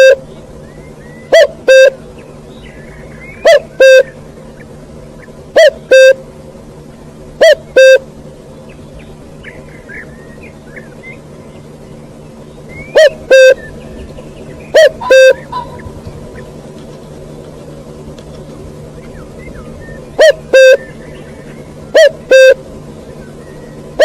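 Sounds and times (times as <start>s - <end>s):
bird horn-like two-note call: 0.0s - 0.3s, 1.2s - 2.0s, 3.4s - 4.2s, 5.6s - 6.2s, 7.4s - 8.1s, 12.8s - 13.8s, 14.8s - 15.8s, 20.2s - 21.0s, 21.9s - 22.6s.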